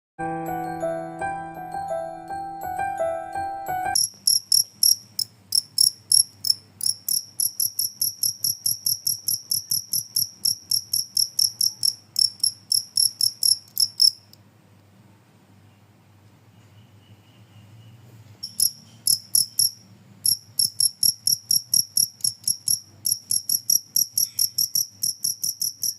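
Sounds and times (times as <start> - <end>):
chiming jingle: 0.2 - 4.0
cricket chirping: 4.0 - 14.4, 18.4 - 25.9.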